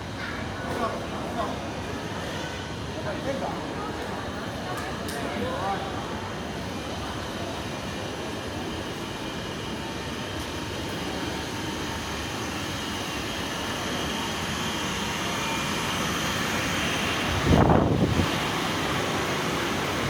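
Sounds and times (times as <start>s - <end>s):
steady rumbling noise: 17.2s - 18.6s.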